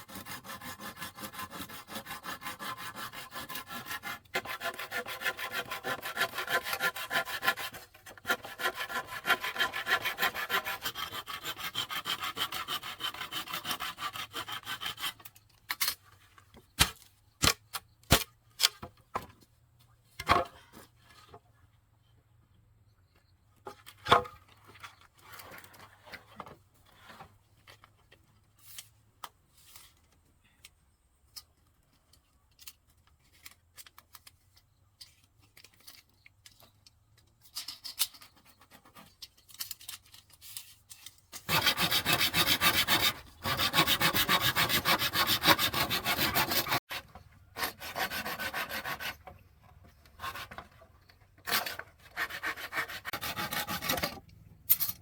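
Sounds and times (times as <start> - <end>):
hand tool rasping on bamboo: 0.0 - 15.3, 41.4 - 49.3, 51.4 - 54.2.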